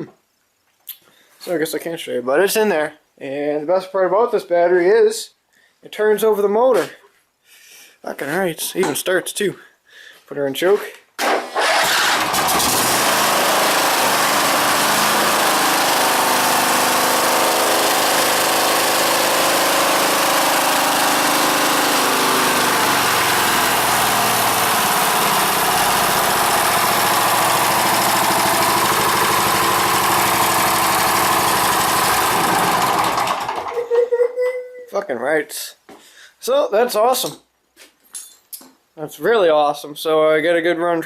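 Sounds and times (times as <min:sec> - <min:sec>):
garden tractor engine running: 0:11.6 - 0:33.8.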